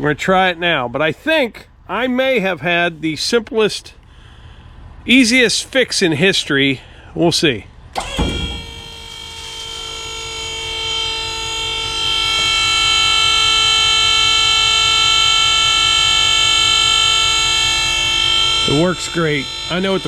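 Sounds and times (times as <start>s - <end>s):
hydraulic pump whining: 7.9s - 20.0s.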